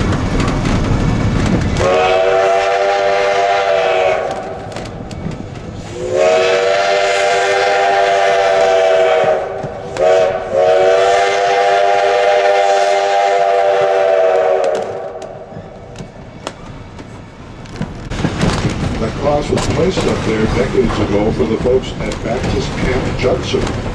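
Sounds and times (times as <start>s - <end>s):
train running with rail clicks: 0.0s - 23.9s
steam locomotive whistle: 1.8s - 4.7s, 5.9s - 15.6s.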